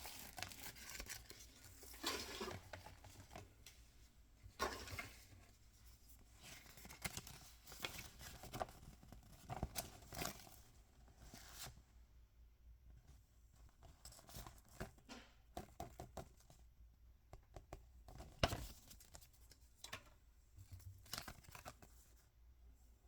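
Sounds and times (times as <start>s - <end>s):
wrapping rustling: 0.0s - 3.6s.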